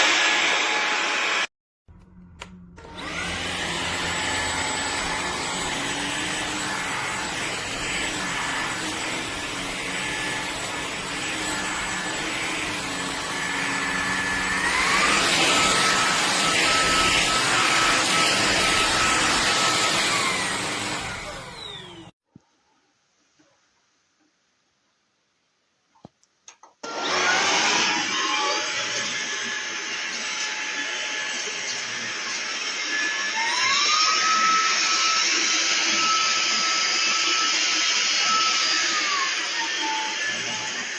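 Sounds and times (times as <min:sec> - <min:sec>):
vacuum cleaner motor whining: 0:00.0 - 0:22.1, 0:26.8 - 0:40.9
vacuum cleaner switch click: 0:02.0 - 0:02.9.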